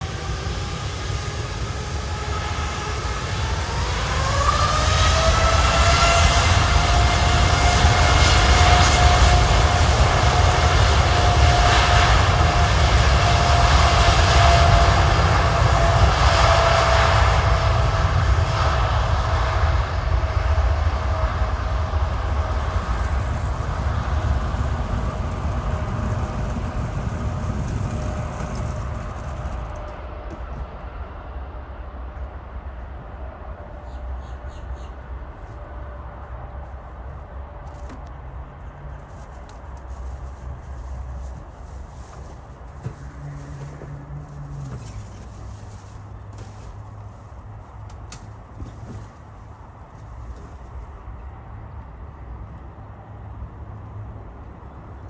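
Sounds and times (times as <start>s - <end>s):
jet engines deep rumble: 0.0s - 55.0s
jet engines whine: 0.0s - 55.0s.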